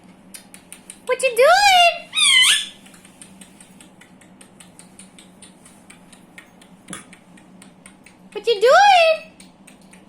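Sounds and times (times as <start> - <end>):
parrot beak and claws clicking: 0.3 - 1.2, 2.3 - 8.4, 9.3 - 10.0.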